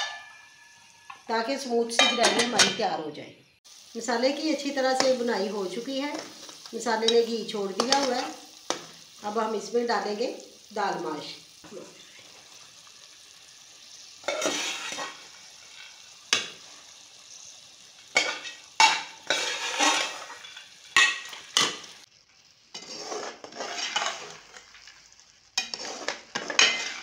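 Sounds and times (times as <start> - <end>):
lentils sizzling in a pan: 0.0 - 27.0
spatula clattering while stirring: 18.1 - 21.9, 22.7 - 24.9, 25.6 - 27.0.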